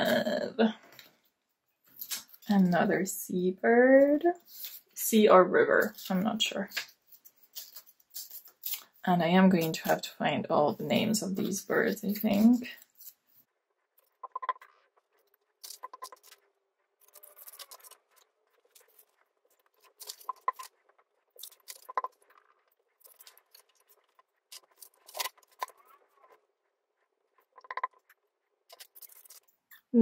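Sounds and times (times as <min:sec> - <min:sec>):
paper rustling: 0:04.4 - 0:05.0, 0:05.8 - 0:09.0, 0:15.1 - 0:26.4, 0:28.7 - 0:29.6.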